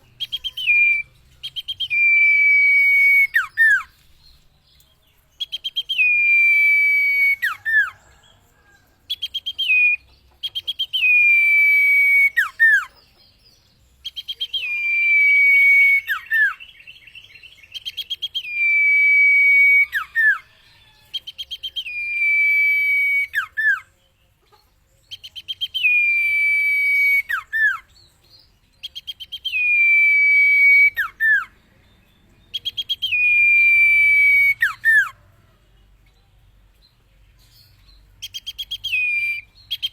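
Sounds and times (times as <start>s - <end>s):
bird singing whistled phrase: 0.1s - 3.9s, 9.2s - 12.9s, 14.0s - 16.8s, 21.3s - 23.9s, 25.1s - 27.9s, 28.8s - 31.5s, 32.5s - 35.1s, 38.2s - 39.9s.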